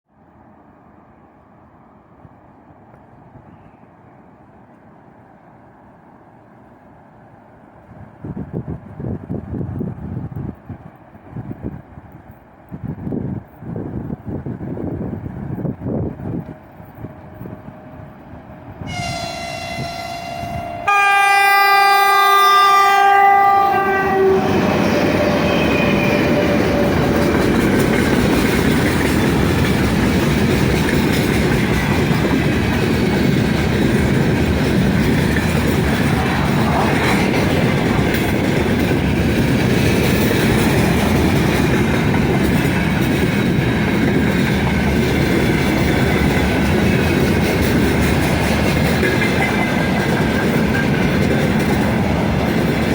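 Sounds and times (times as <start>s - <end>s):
freight train rumbling past: 0.1s - 52.9s
locomotive horn blast: 18.8s - 26.8s.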